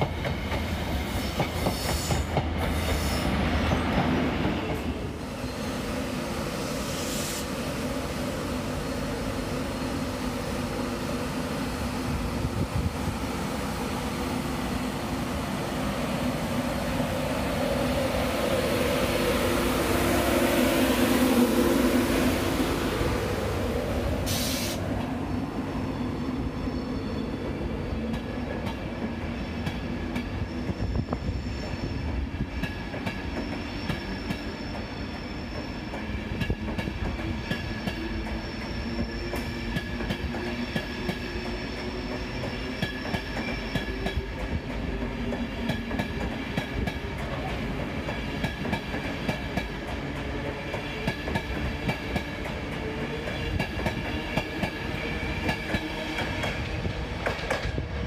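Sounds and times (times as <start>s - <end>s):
train rumble: 27.4s - 58.0s
high wheel squeal: 40.9s - 44.1s.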